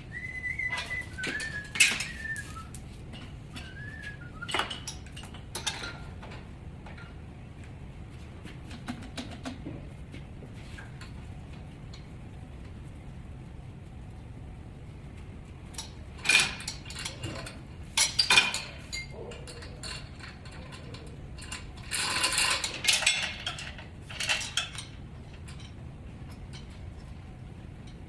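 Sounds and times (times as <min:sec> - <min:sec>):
low hum: 0:00.0 - 0:04.6
metal tools clinking: 0:00.1 - 0:06.1, 0:16.2 - 0:26.8.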